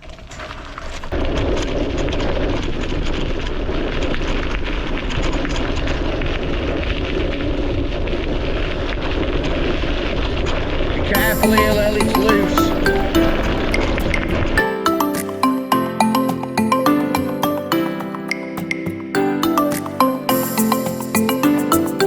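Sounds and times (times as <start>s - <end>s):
bicycle tyres rumbling on loose path: 0.0s - 11.1s.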